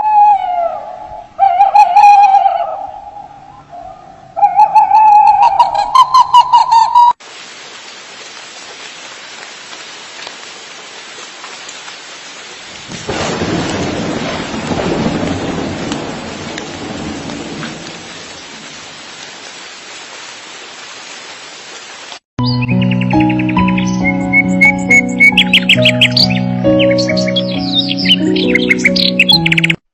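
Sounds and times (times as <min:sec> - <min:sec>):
steady rain: 0:07.2 - 0:22.3
thunder rumbling: 0:12.7 - 0:19.2.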